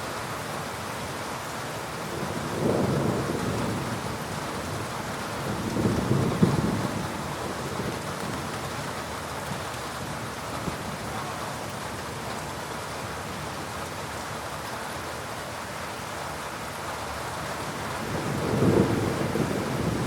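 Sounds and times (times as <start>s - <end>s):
heavy rain falling: 0.0s - 20.0s
low rumble of thunder: 2.0s - 9.0s, 17.7s - 20.0s.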